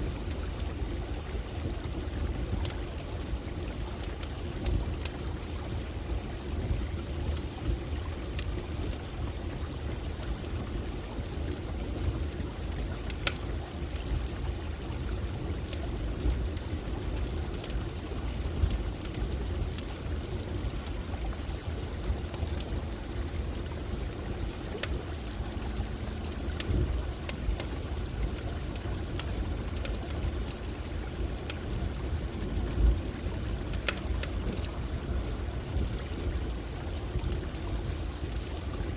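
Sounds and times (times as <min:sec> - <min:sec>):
running water: 0:00.0 - 0:38.9
campfire crackling and popping: 0:00.1 - 0:10.8, 0:11.5 - 0:38.9.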